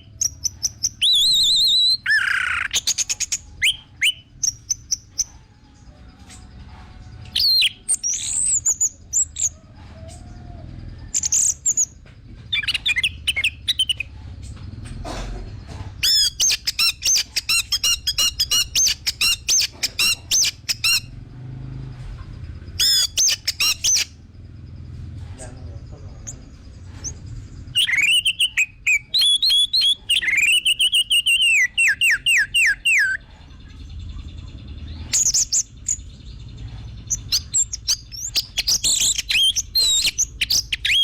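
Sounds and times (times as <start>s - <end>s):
thrush whistled song: 0.0s - 5.3s, 27.7s - 33.2s, 37.1s - 41.0s.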